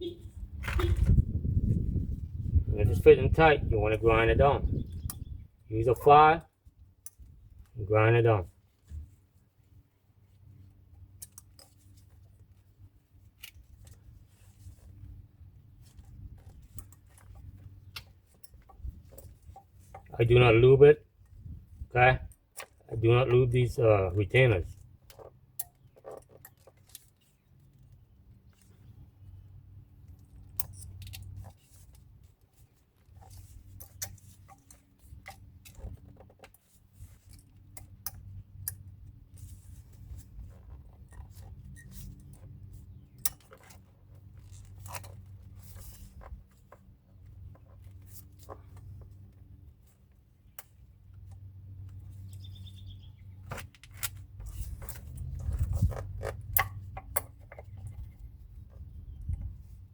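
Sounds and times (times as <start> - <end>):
metallic clicks and scrapes: 11.1 - 12.6, 15.8 - 20.2, 24.3 - 28.9, 30.0 - 52.5, 53.3 - 59.8.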